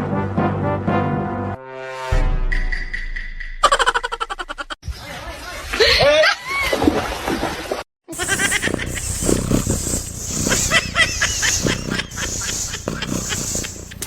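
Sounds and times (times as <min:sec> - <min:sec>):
animal calls: 0:08.1 - 0:14.0.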